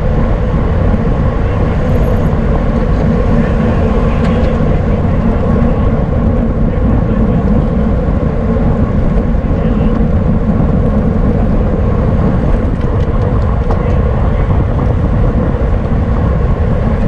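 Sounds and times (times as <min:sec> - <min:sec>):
faint bicycle hum: 0:00.0 - 0:17.0
wind rushing on microphone: 0:00.0 - 0:17.0.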